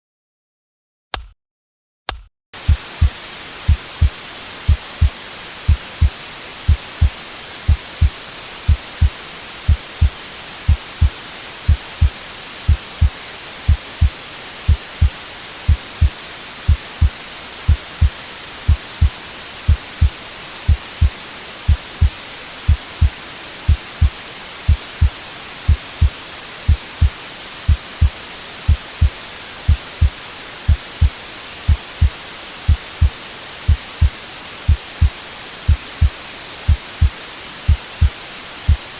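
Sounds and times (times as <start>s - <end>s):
heartbeat thumping: 2.1s - 11.1s, 11.7s - 12.1s, 12.7s - 13.1s, 13.7s - 16.1s, 17.7s - 18.1s, 18.7s - 20.1s, 20.7s - 21.1s, 21.7s - 23.1s, 23.7s - 24.1s, 26.7s - 27.1s, 28.7s - 37.1s, 37.7s - 38.1s
white-noise hiss: 2.6s - 38.9s.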